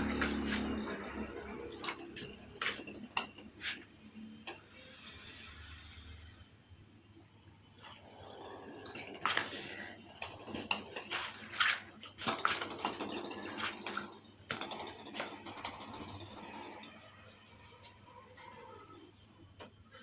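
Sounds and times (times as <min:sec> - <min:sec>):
knocks and rustles: 0:00.0 - 0:04.6, 0:08.8 - 0:16.6
insects chirping: 0:00.0 - 0:20.0.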